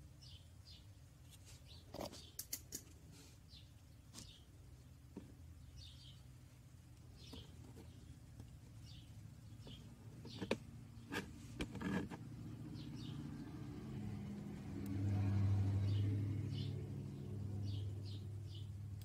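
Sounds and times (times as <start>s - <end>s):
bird chirping: 0.1s - 1.0s, 3.5s - 6.3s, 7.0s - 11.2s, 12.5s - 14.2s, 14.8s - 18.8s.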